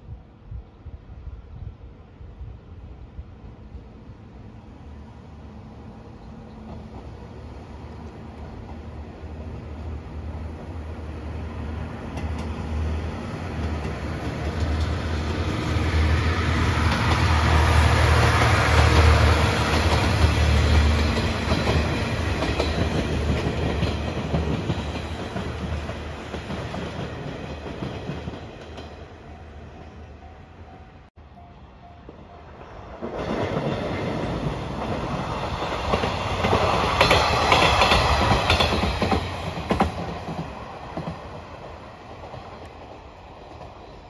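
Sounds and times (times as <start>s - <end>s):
railcar engine hum: 0.0s - 44.0s
wheels clattering on rails: 13.5s - 15.6s, 33.0s - 43.8s.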